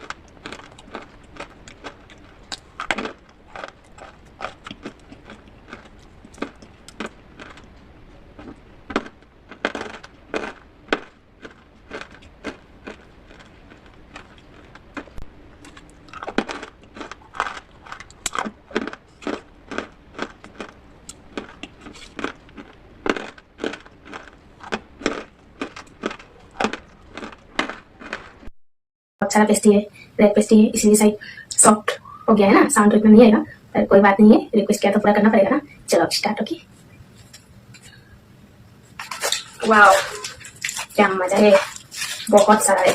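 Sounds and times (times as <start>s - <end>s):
clay pot pieces being crushed: 39.0s - 42.9s.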